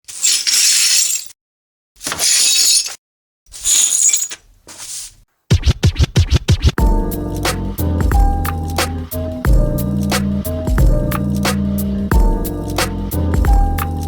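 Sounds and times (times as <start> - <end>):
glass smashing: 0.1 - 1.4, 2.0 - 3.0, 3.6 - 4.4
electronic music: 6.8 - 14.0.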